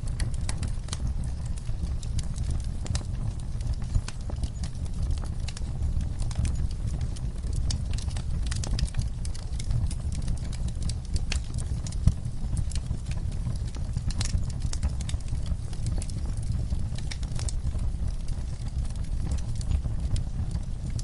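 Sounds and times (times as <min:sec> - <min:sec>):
low rumble of flames: 0:00.0 - 0:21.0
wood fire crackling: 0:00.0 - 0:21.0.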